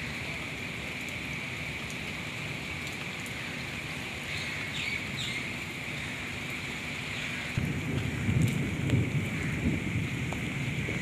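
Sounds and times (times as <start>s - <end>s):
heavy rain on pavement and water: 0.0s - 11.0s
drip ticks: 2.8s - 3.4s.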